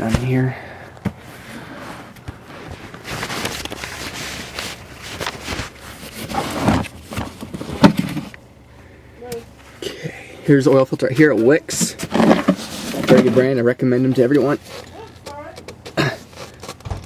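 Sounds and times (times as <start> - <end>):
rustling on carpet: 1.3 - 6.7.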